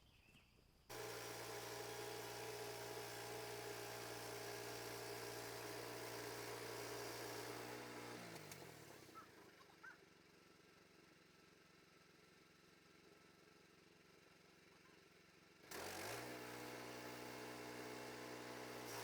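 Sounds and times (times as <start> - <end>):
engine running and slowing: 0.9 - 9.6.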